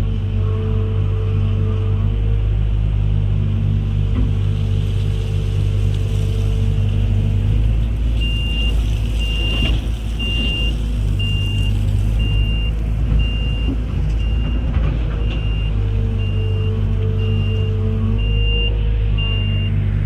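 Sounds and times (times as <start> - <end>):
diesel engine running: 0.0 - 20.0
high-pitched warning beeps: 15.2 - 19.8.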